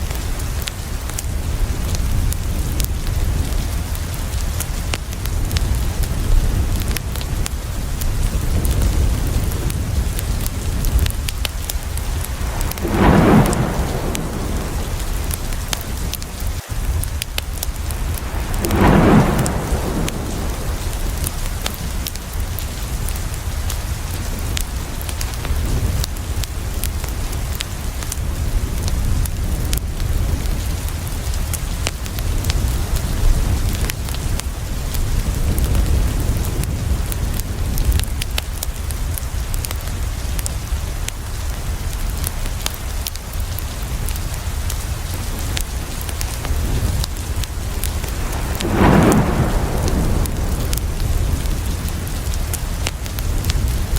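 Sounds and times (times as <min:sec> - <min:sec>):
heavy rain: 0:00.0 - 0:53.9
thunder rumbling: 0:01.4 - 0:26.9, 0:45.4 - 0:53.9.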